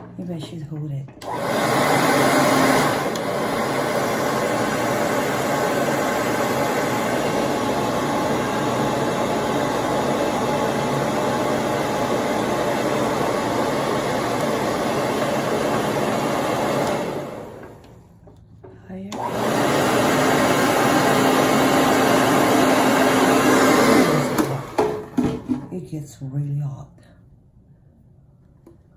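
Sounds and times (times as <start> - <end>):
hair dryer blowing: 1.2 - 18.0, 19.1 - 25.4.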